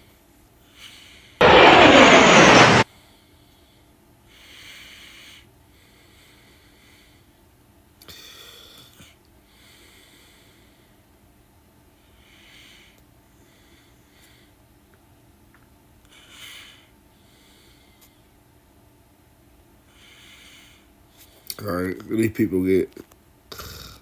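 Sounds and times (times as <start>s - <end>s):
person breathing softly: 2.9s - 7.3s, 8.1s - 11.0s, 12.0s - 14.6s, 16.1s - 18.3s, 19.9s - 21.4s.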